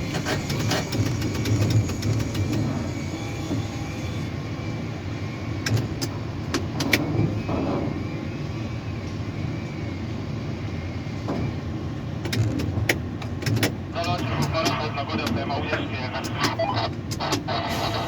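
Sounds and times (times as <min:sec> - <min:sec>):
crane machinery rumble: 0:13.8 - 0:18.0
sharp clicks: 0:16.2 - 0:17.5.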